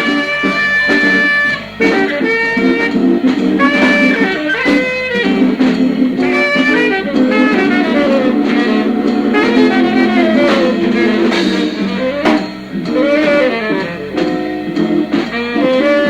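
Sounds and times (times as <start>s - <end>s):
jazz quartet playing: 0.0s - 16.0s
saxophone melody: 0.0s - 16.0s
sustained organ chords: 0.6s - 15.7s
sharp drum hit: 1.0s - 15.4s.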